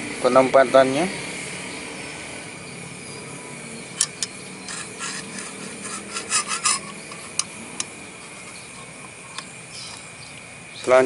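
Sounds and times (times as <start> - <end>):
scraping rubs on whetstone: 4.6 - 10.0.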